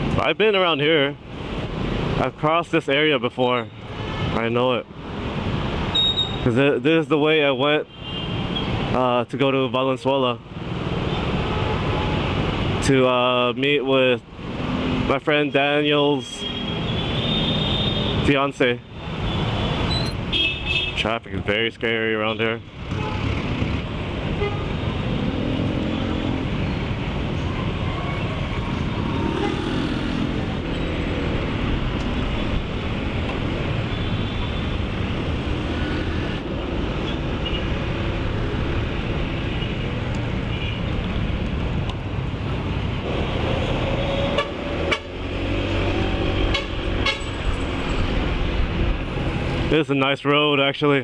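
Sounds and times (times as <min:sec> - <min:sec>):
motor scooter engine and road noise: 0:18.9 - 0:21.0, 0:22.6 - 0:49.8
vehicle horn toots: 0:20.3 - 0:21.0, 0:24.4 - 0:24.8, 0:46.5 - 0:47.4.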